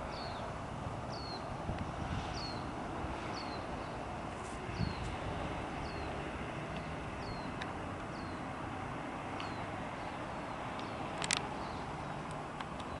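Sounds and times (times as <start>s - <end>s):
jet airliner rumbling overhead: 0.0s - 12.1s
bird chirping: 0.1s - 0.5s, 1.1s - 1.5s, 2.3s - 4.0s, 4.7s - 5.2s, 5.8s - 6.2s, 6.8s - 8.5s, 9.4s - 12.2s.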